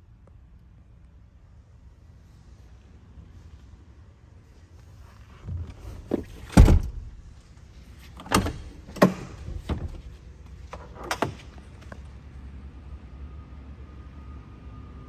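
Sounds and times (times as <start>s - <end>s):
truck parts clunking and clicking: 5.4s - 12.1s.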